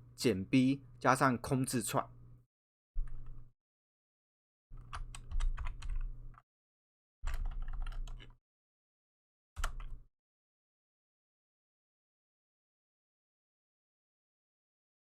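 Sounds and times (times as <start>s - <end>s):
keyboard typing: 4.8s - 6.4s, 7.3s - 8.4s, 9.6s - 10.0s.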